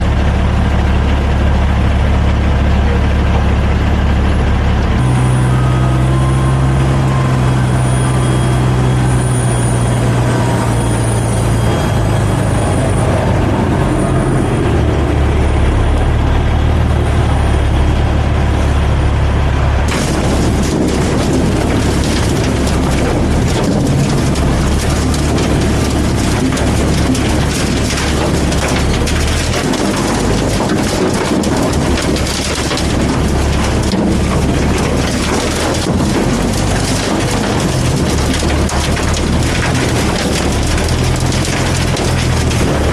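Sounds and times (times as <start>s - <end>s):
heavy diesel engines running: 0.0s - 42.9s
asphalt pouring into truck bed: 19.9s - 42.9s.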